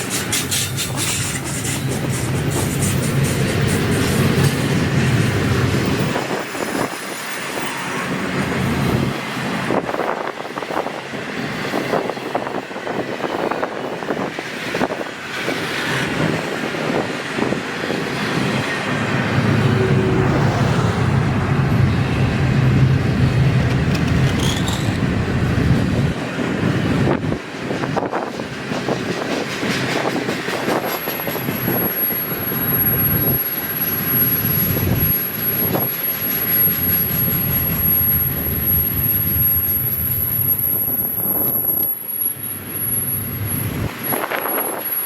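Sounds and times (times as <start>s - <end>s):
train wheels clacking on rails: 0.0s - 19.1s, 22.8s - 45.0s
high wheel squeal: 24.0s - 25.1s, 31.2s - 45.0s.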